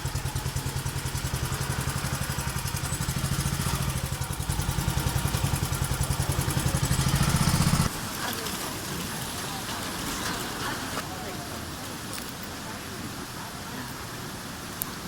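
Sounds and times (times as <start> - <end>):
boat engine running: 0.0 - 7.9.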